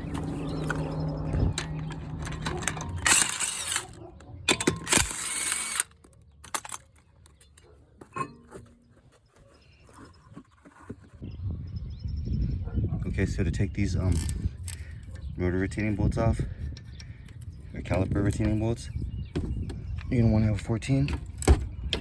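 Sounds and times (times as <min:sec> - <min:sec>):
metal tools clinking: 0:00.0 - 0:09.0, 0:14.0 - 0:15.0.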